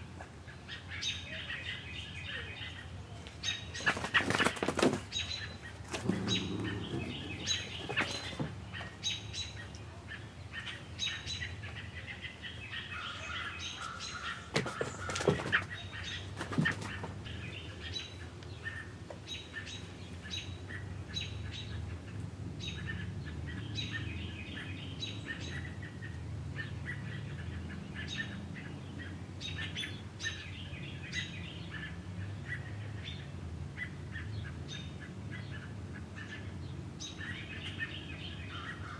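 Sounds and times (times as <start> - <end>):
wings flapping: 3.8 - 5.1, 5.8 - 8.6, 14.5 - 17.2
small bird chirping: 5.1 - 9.9.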